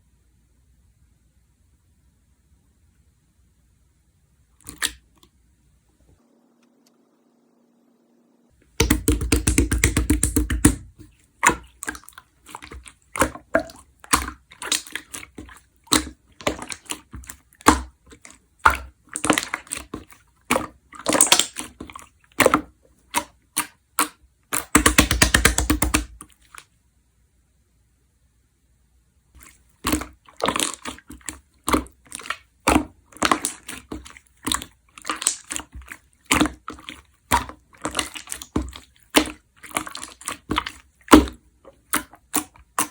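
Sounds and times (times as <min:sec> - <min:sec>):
slime crackling and popping: 0:08.8 - 0:22.6, 0:29.8 - 0:42.9.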